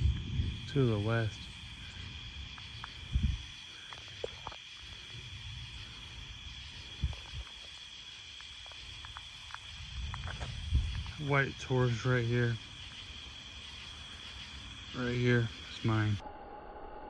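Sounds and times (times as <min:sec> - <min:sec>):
dull low thumps: 0:00.0 - 0:03.5, 0:09.8 - 0:11.3
night insects chirping: 0:00.0 - 0:16.2.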